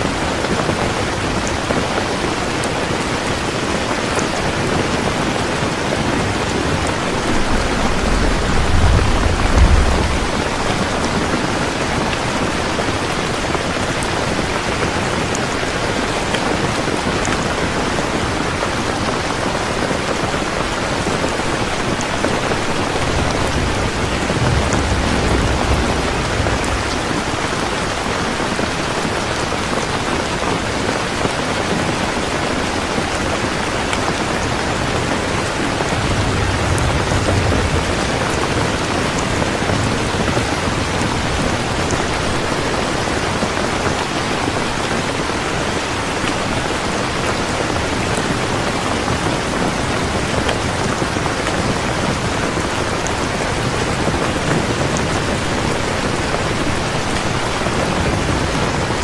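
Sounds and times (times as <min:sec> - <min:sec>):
heavy rain pouring: 0:00.0 - 0:59.0
low thunder rumbles: 0:04.8 - 0:15.3, 0:17.8 - 0:29.8, 0:34.4 - 0:43.7, 0:46.4 - 0:59.0.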